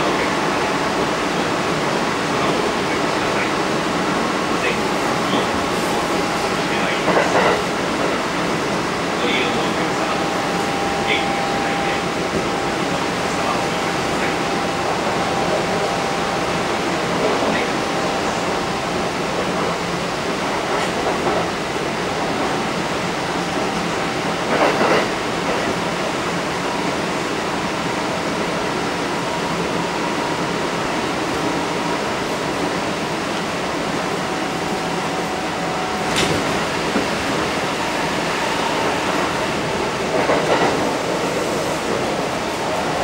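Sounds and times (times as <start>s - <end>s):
wheels rumbling on rail: 0.0s - 43.0s
faint steady tones: 9.2s - 19.6s.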